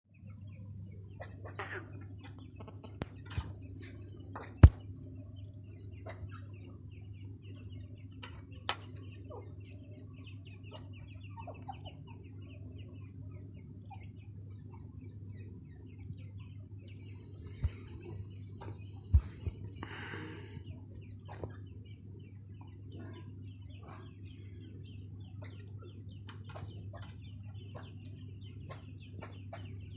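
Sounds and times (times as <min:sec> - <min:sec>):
steady low hum: 0:00.1 - 0:29.9
chicks peeping: 0:05.7 - 0:29.9.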